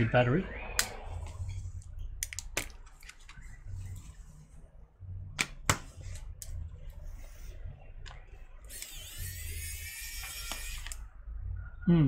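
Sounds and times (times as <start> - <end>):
high-pitched whine: 0.0 - 2.1.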